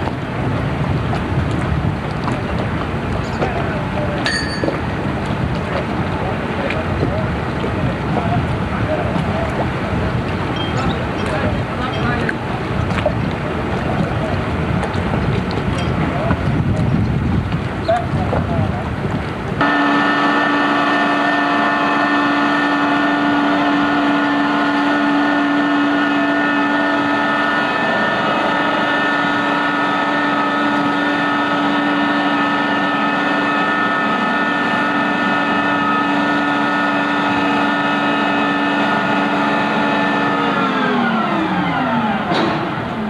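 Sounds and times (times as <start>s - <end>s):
motor running with high whine: 19.6s - 43.0s.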